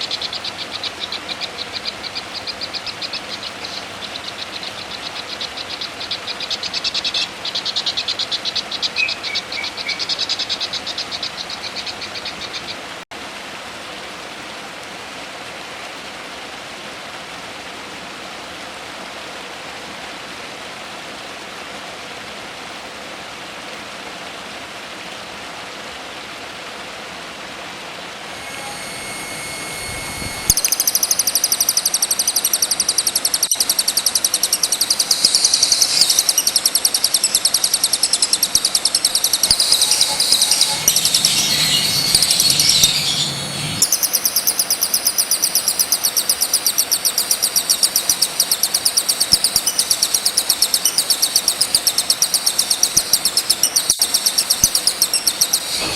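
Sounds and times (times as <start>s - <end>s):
songbird chirping trill: 0.0s - 12.8s, 28.3s - 55.9s
rushing water: 0.0s - 55.9s.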